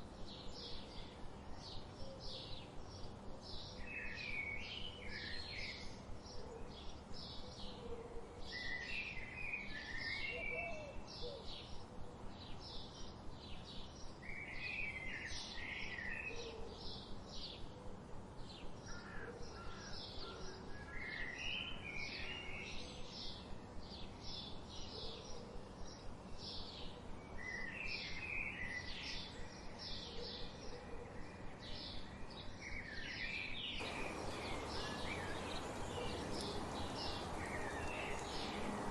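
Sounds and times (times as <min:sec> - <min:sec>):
bird chipping: 0:33.8 - 0:38.9.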